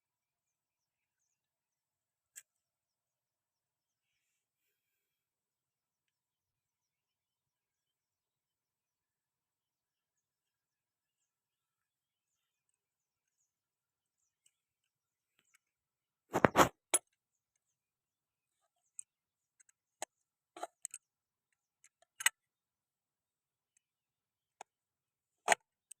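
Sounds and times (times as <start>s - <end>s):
knocks and clicks: 16.3s - 16.7s.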